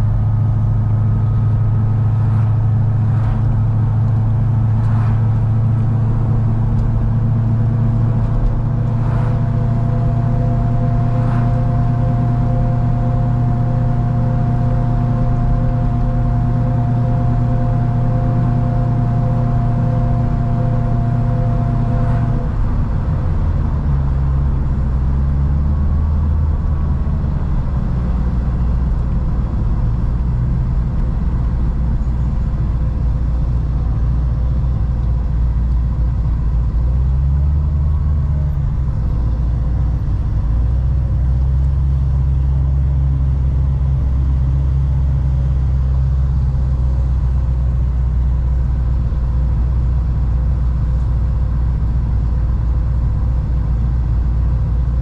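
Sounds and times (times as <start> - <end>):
car engine droning: 0.0 - 55.0.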